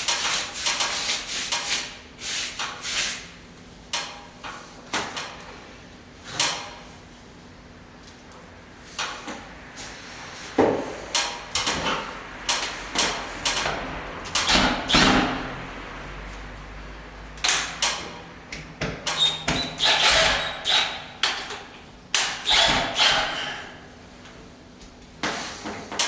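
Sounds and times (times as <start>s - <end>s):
hand tools scraping plaster: 0.0s - 3.3s, 19.2s - 21.1s.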